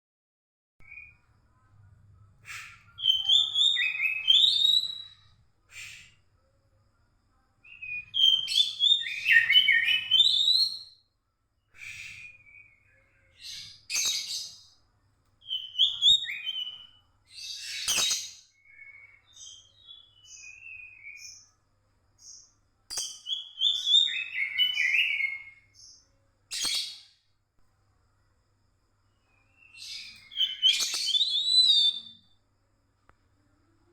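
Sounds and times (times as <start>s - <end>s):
bird singing whistled notes: 2.5s - 6.2s, 7.7s - 11.0s, 11.7s - 14.7s, 15.4s - 21.5s, 22.2s - 27.2s, 29.2s - 32.4s
soft short bird chips: 13.4s - 14.6s, 15.4s - 21.4s, 22.2s - 25.9s, 26.5s - 27.2s, 29.5s - 32.2s.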